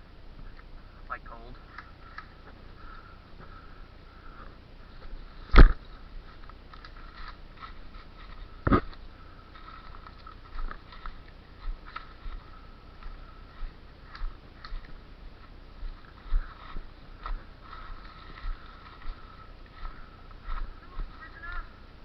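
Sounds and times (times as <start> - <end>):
footsteps walking: 4.3 - 21.8.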